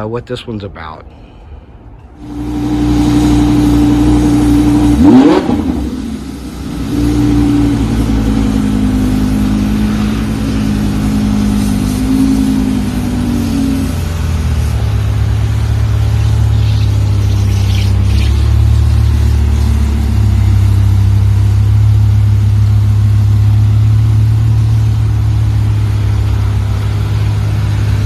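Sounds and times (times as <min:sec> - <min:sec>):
car engine revving: 0:02.2 - 0:28.0.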